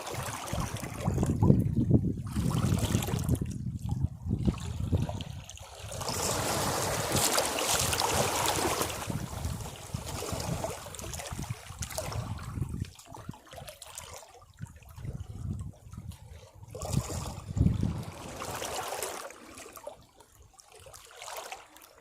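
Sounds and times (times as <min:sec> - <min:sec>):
waves breaking on rocks: 0:05.8 - 0:12.4.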